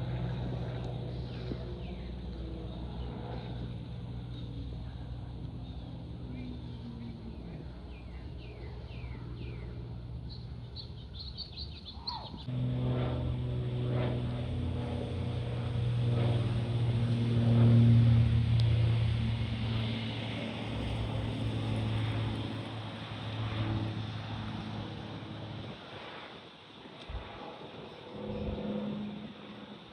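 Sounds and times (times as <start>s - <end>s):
low engine drone: 0.0s - 26.4s, 27.0s - 29.9s
birds chirping: 5.5s - 12.5s.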